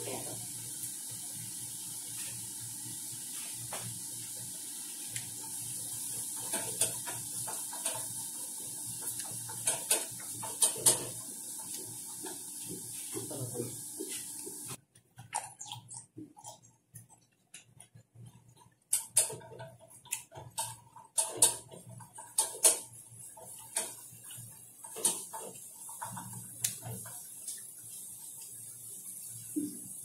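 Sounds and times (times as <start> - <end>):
background hiss and hum: 0.0 - 14.8, 15.9 - 30.0
wet chewing of pepper: 15.1 - 21.2.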